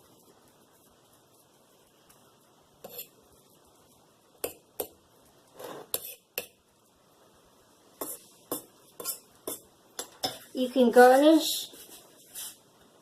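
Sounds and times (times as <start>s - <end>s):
kitchen utensils and dishes clinking: 8.0s - 10.6s.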